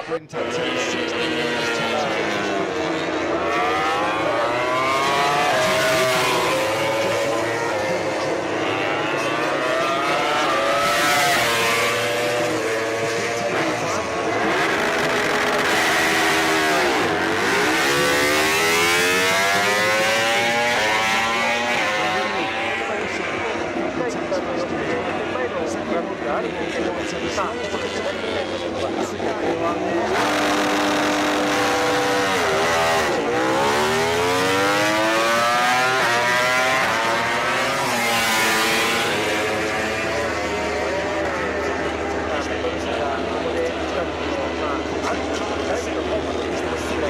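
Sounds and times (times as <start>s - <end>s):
racing motorcycle engine revving: 0.1s - 47.0s.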